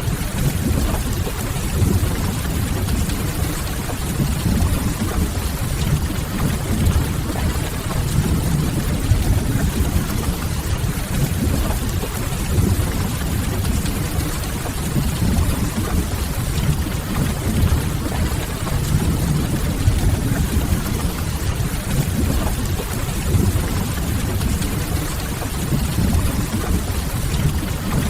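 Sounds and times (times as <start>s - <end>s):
rain on a window: 0.0s - 28.0s
low rumble: 15.1s - 21.3s.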